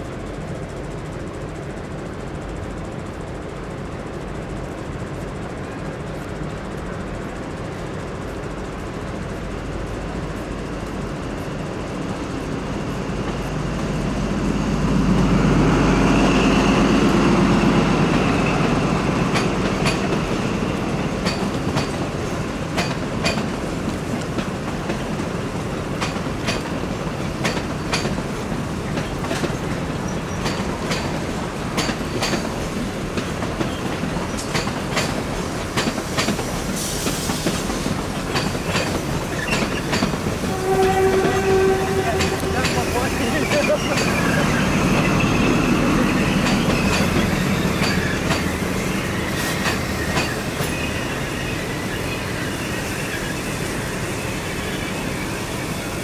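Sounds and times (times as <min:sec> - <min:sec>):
train rumble: 0:00.0 - 0:56.0
train wheels clicking over rail joints: 0:16.3 - 0:56.0.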